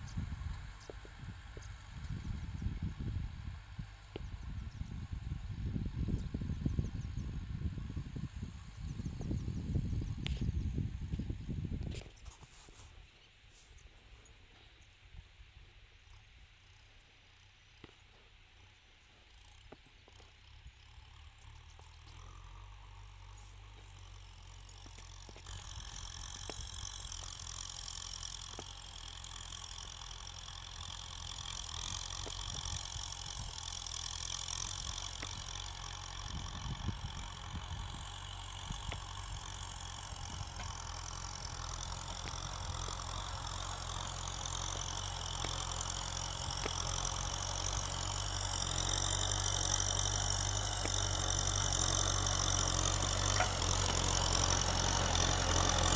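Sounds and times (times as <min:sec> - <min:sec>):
tractor diesel engine running: 0:00.0 - 0:12.3, 0:17.0 - 0:55.9.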